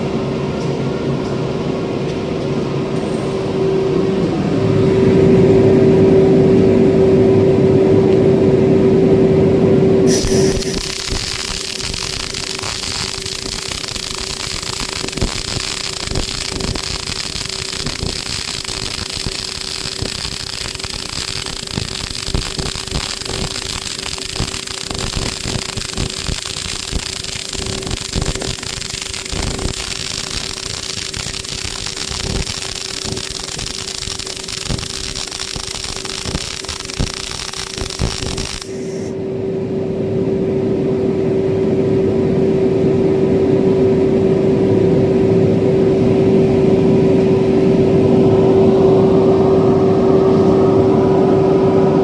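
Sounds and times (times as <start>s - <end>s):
welding set hum: 9.9s - 51.4s
welding arc crackling: 10.1s - 39.1s.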